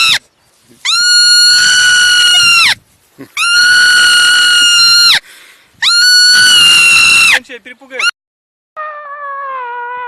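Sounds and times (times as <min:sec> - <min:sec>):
animal shrieking: 0:00.8 - 0:02.8, 0:03.4 - 0:05.2, 0:05.8 - 0:07.4.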